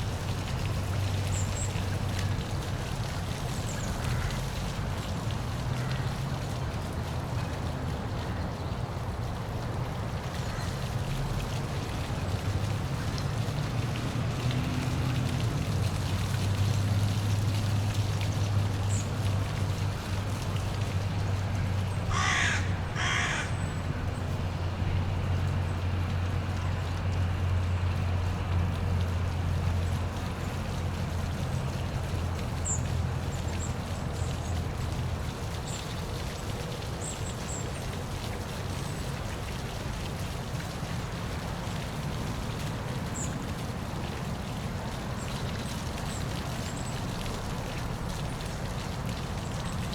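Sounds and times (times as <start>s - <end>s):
crow cawing: 22.1s - 23.6s.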